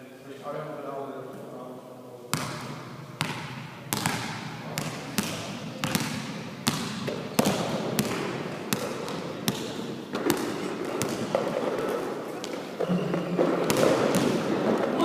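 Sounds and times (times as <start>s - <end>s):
basketballs bouncing on hard floor: 2.4s - 15.0s.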